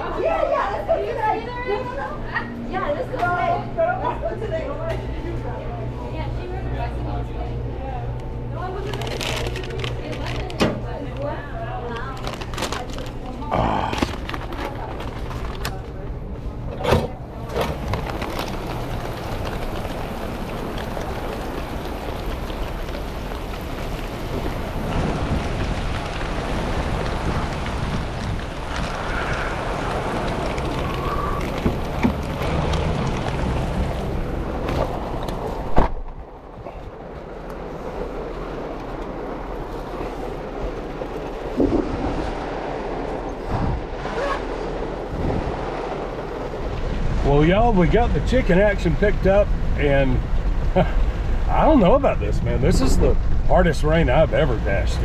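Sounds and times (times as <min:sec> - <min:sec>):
road noise: 0:00.0 - 0:55.0
raindrops ticking: 0:17.4 - 0:35.4
rain on a moving car: 0:17.4 - 0:35.8, 0:36.4 - 0:55.0.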